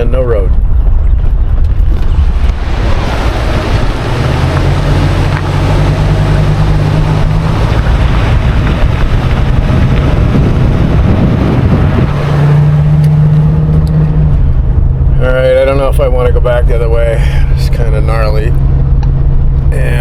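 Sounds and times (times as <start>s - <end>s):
tyre and wind noise: 0.0s - 15.6s
car engine hum: 0.0s - 20.0s.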